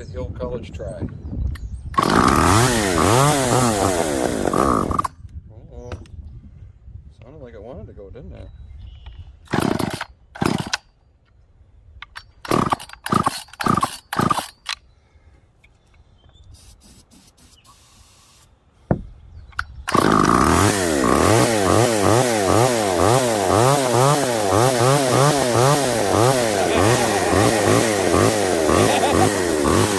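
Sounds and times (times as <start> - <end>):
chainsaw engine revving: 2.0 - 5.1, 9.5 - 10.8, 12.4 - 14.6, 19.9 - 29.9
chainsaw pull-starting: 2.0 - 5.1, 9.5 - 10.9, 12.2 - 14.8, 19.6 - 29.9.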